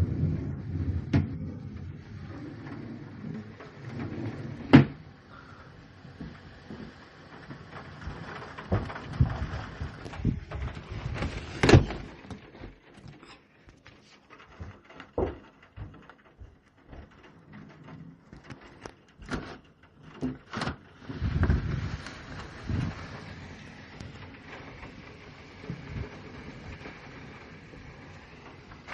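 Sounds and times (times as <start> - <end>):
knocks and clatters: 6.1 - 23.3.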